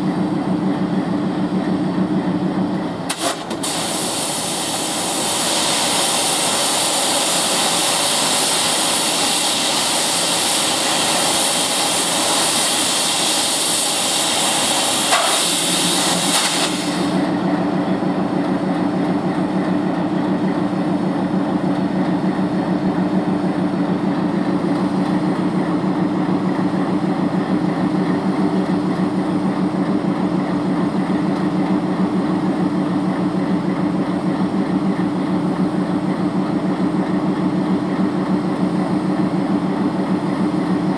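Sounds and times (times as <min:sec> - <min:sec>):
diesel engine idling: 0:00.0 - 0:03.1, 0:17.0 - 0:40.9
compressed air hissing: 0:03.1 - 0:17.3.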